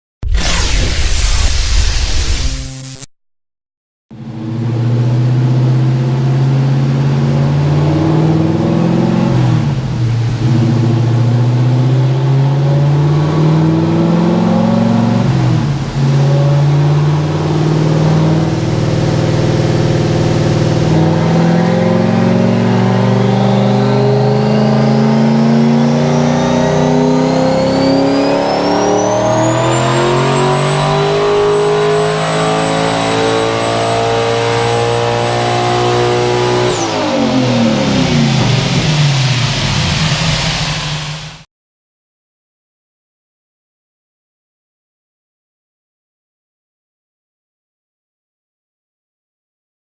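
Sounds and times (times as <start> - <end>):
high turbo whine: 0.2 - 3.1, 4.2 - 41.4
car engine revving: 4.2 - 41.4.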